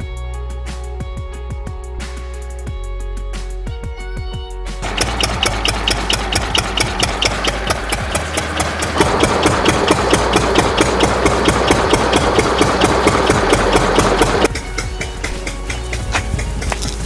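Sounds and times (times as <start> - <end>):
diesel engine running: 4.8 - 17.0.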